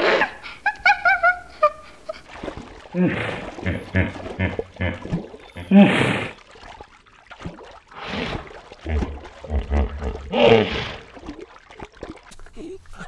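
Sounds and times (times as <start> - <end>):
water splashing: 0.0 - 13.0
hippopotamus snorting: 3.0 - 6.4, 8.0 - 11.4
low grunting rumbles: 8.8 - 11.1.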